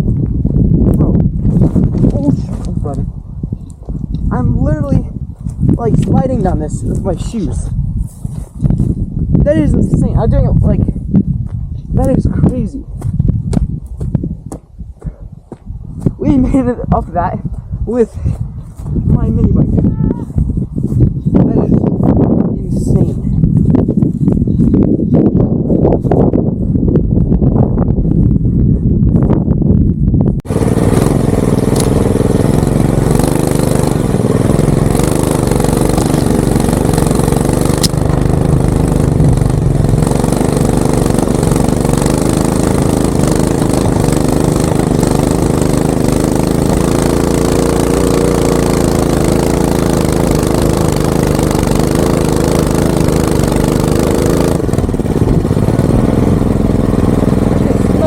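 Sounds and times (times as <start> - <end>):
minibike engine running: 30.5 - 58.0.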